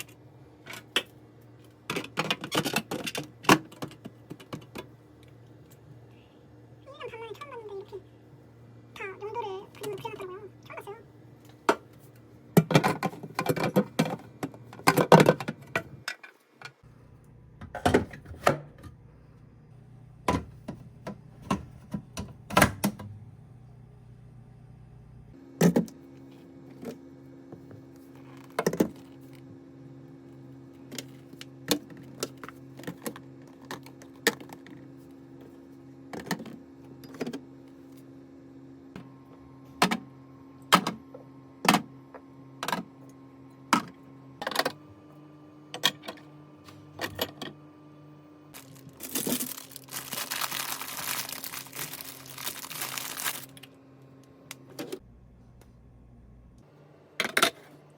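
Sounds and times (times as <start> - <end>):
steady low hum: 16.8 - 57.2.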